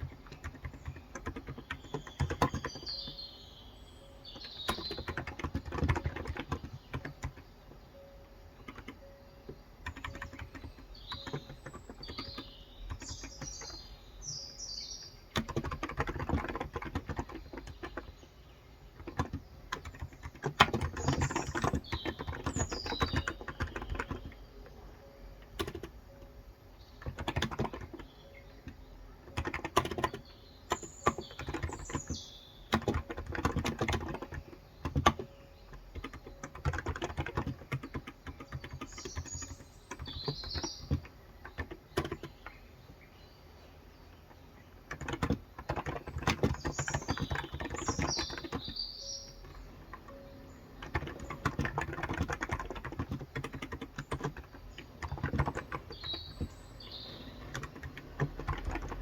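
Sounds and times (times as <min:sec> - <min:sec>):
keyboard typing: 0:00.0 - 0:43.1, 0:44.0 - 0:59.0
bird chirping: 0:00.0 - 0:59.0.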